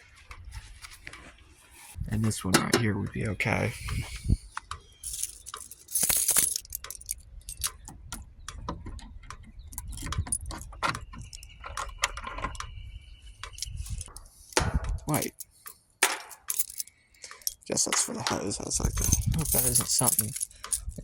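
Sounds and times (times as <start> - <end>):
keys jangling: 5.0 - 7.8, 15.0 - 18.1, 18.8 - 21.0.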